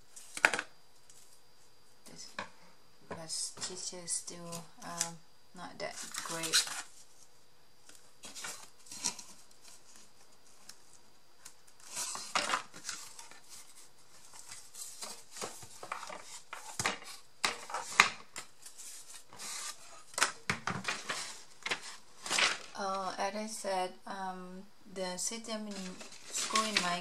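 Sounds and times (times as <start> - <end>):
craft pieces rustling: 5.9 - 7.0, 11.7 - 22.8, 25.6 - 27.0.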